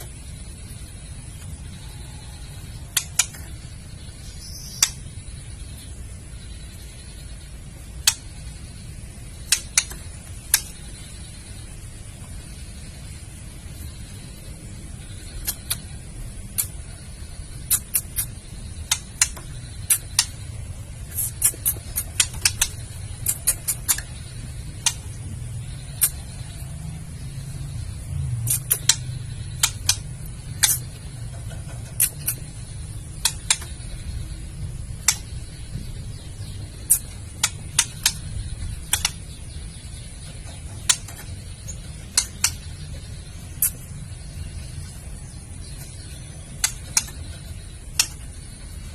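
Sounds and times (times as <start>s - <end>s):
low background rumble: 0.0s - 48.9s
bird giving harsh clicking call: 2.9s - 3.6s, 4.6s - 5.1s, 8.0s - 8.4s, 9.4s - 11.0s, 15.2s - 16.9s, 17.5s - 20.4s, 21.1s - 25.2s, 25.9s - 26.3s, 28.4s - 34.0s, 35.0s - 35.6s, 36.8s - 39.4s, 40.2s - 43.8s, 45.8s - 48.5s.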